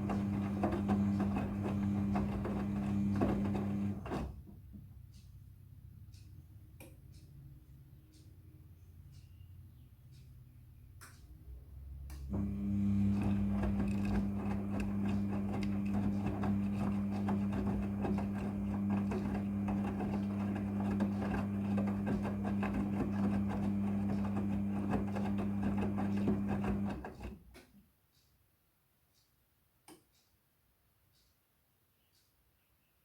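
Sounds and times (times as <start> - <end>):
washing machine running: 0.0 - 4.5, 12.3 - 27.4.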